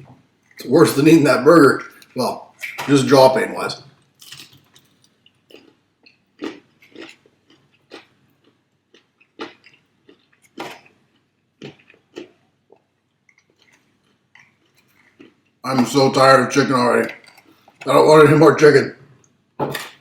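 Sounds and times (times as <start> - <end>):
person chewing fried chicken: 4.1 - 15.6.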